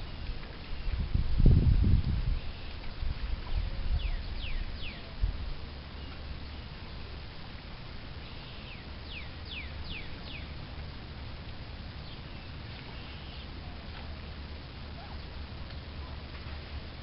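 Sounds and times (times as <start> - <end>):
steady low rumble: 0.0 - 17.0
bird whistled calls: 4.0 - 5.1, 8.2 - 10.5.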